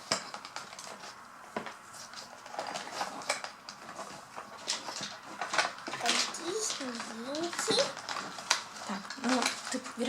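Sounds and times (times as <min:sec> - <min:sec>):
plastic toy pieces clicking: 0:05.4 - 0:09.8.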